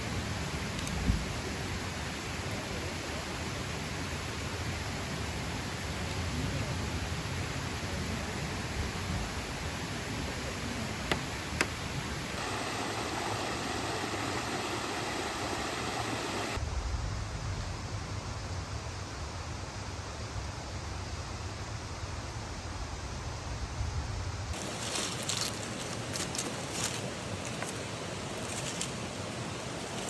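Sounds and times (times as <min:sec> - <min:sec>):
steady rushing noise: 0:10.7 - 0:19.1.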